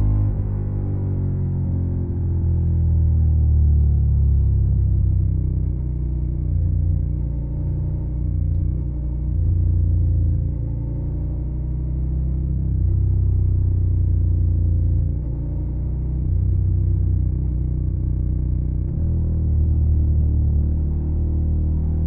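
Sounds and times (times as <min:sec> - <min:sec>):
motorcycle engine revving: 0:03.9 - 0:22.0.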